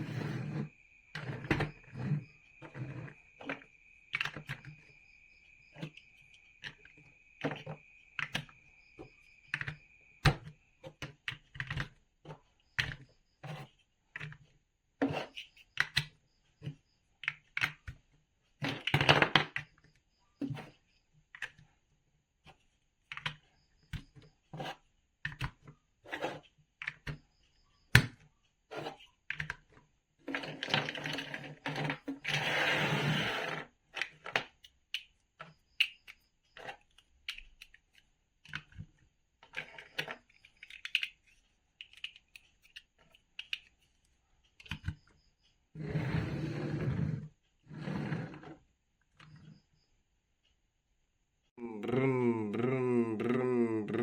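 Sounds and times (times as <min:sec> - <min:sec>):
plastic bricks clicking together: 0:23.1 - 0:23.4, 0:28.9 - 0:29.7, 0:34.0 - 0:43.9.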